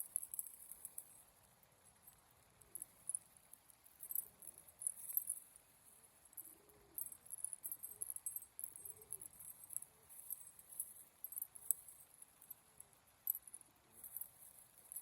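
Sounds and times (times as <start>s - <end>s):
pigeons cooing softly: 6.4s - 7.1s, 8.8s - 9.3s.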